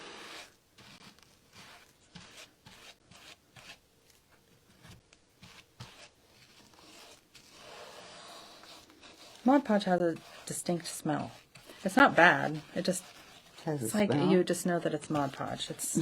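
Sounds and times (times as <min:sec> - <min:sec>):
brush strokes on a sign: 0:00.0 - 0:03.8, 0:04.8 - 0:16.0.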